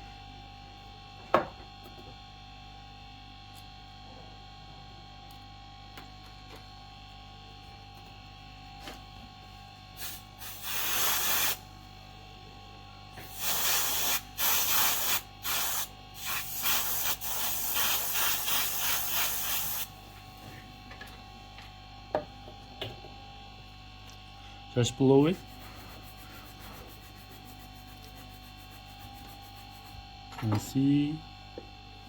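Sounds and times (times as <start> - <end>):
aerosol spray hissing: 10.0 - 11.6, 13.3 - 19.9.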